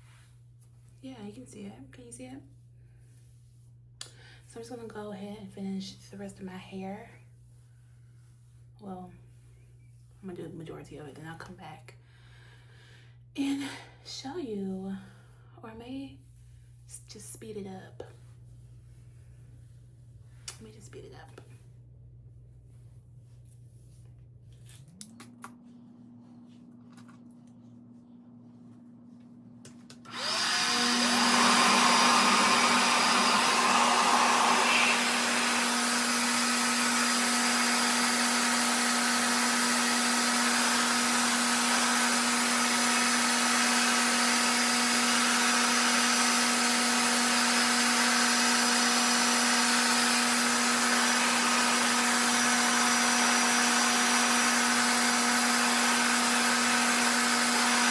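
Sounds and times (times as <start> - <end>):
blow dryer motor hum: 29.9 - 57.9
rush of suctioned air: 30.4 - 36.5.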